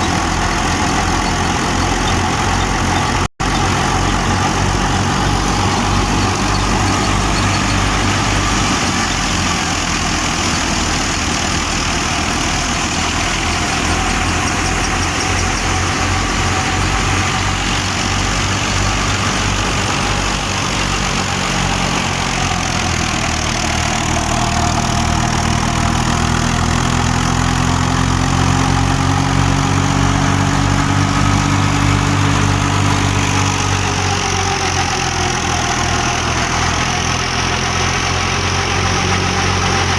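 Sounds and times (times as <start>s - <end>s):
higher hum rising in pitch: 0.0s - 26.2s
tractor diesel engine running: 0.0s - 39.9s.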